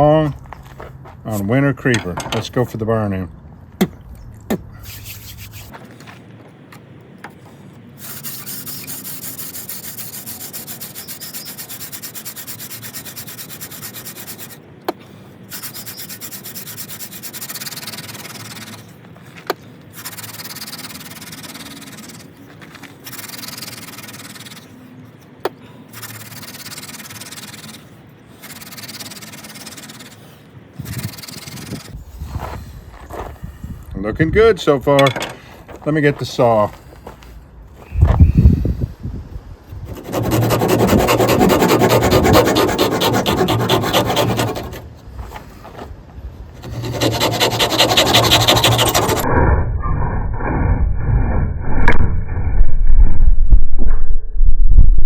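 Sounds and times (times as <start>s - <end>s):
wood rubbing on wood: 39.7s - 49.2s.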